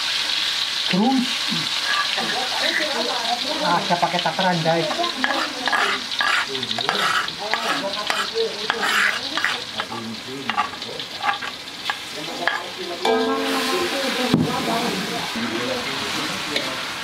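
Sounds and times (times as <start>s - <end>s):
spice paste sizzling in oil: 0.0s - 17.0s
metal spatula scraping stone mortar: 1.8s - 2.9s, 4.8s - 12.7s.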